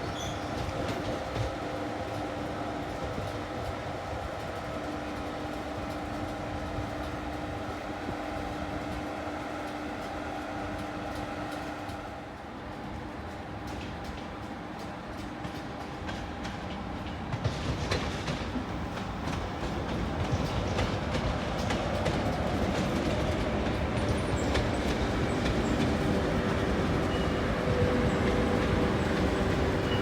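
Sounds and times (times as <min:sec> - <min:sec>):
train wheels clattering over rails: 0:08.7 - 0:30.0
high wheel squeaks: 0:27.0 - 0:30.0.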